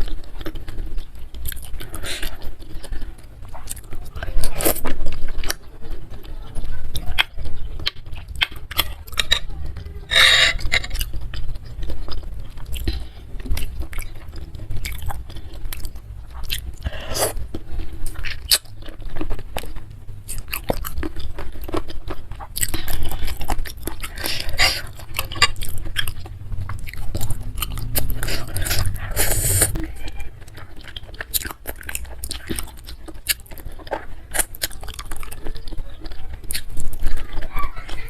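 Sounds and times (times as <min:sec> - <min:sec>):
food crunching: 0:00.0 - 0:38.0
person chewing and biting: 0:00.0 - 0:38.0.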